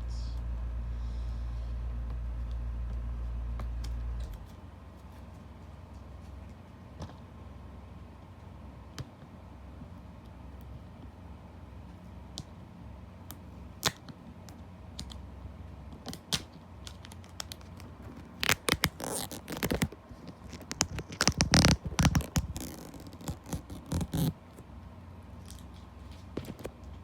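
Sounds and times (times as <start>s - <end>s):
scratching and rustling packaging: 16.1s - 24.6s, 25.4s - 27.0s.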